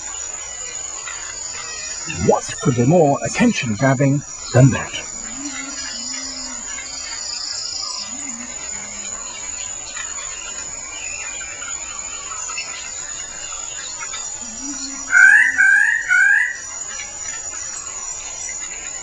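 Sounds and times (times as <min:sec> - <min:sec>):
high-pitched insect drone: 0:04.3 - 0:17.0
bird calling wavering notes: 0:04.8 - 0:09.6, 0:13.8 - 0:16.6.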